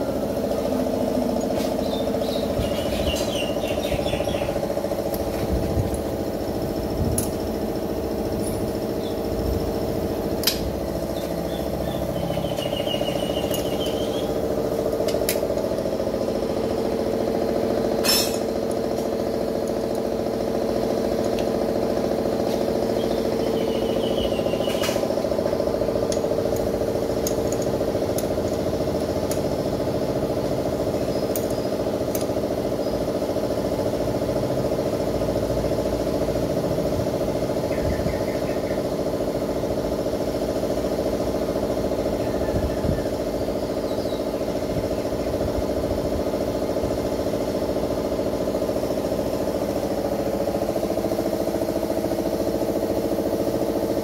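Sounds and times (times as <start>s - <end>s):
farm machine engine running: 0.0s - 37.6s.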